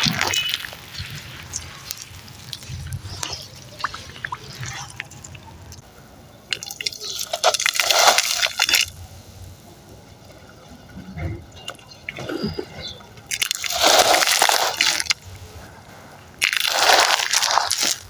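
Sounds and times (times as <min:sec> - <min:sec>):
wet sand-cement crumbling: 0:00.0 - 0:05.8, 0:06.5 - 0:09.0, 0:12.4 - 0:15.5, 0:16.3 - 0:18.0.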